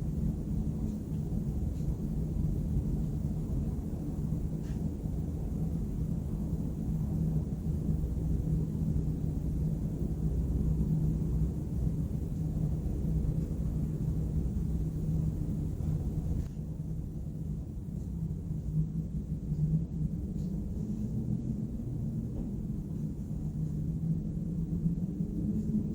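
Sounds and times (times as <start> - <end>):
constant low hum: 0.0 - 25.9.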